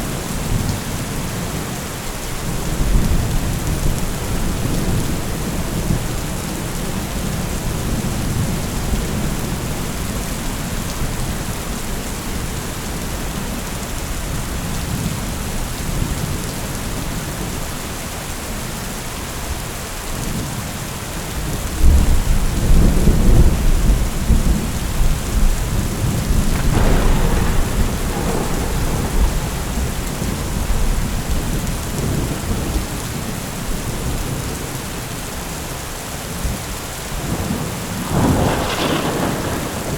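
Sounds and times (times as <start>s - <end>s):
steady rain falling: 0.0s - 39.9s
deep roll of thunder: 21.8s - 33.2s, 37.2s - 39.9s.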